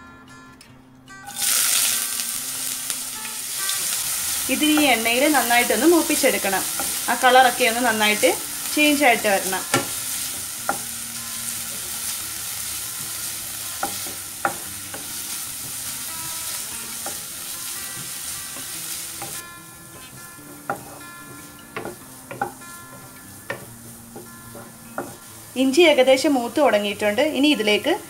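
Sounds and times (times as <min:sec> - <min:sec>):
ginger sizzling in hot oil: 0:01.3 - 0:28.0
wooden spatula knocking on pan: 0:09.4 - 0:10.9, 0:13.8 - 0:15.9, 0:17.9 - 0:25.3.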